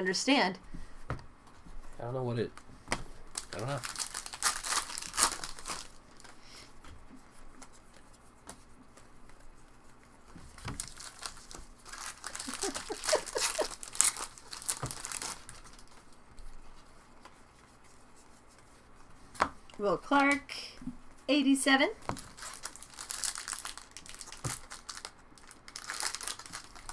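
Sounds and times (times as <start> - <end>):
card pack wrappers crinkling: 3.3 - 6.4, 10.5 - 16.2, 22.1 - 26.9.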